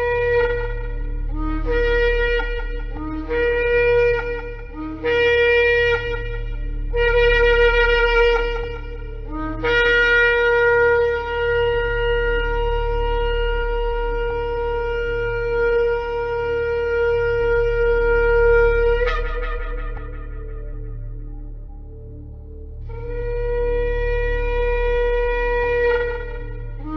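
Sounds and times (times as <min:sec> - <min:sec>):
low steady hum: 0:00.0 - 0:26.9
ram's horn blowing: 0:00.0 - 0:26.9.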